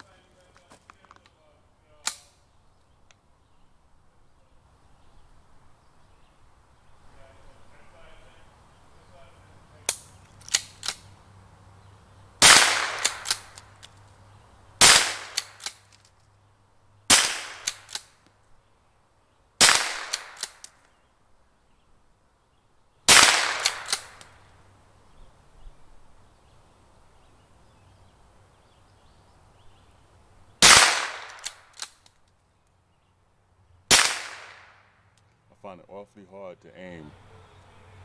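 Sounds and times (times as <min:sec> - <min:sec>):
rifle shots cracking: 0:12.4 - 0:13.8, 0:14.8 - 0:15.9, 0:17.1 - 0:18.2, 0:19.6 - 0:20.7, 0:23.1 - 0:24.4, 0:30.6 - 0:32.1, 0:33.9 - 0:34.8.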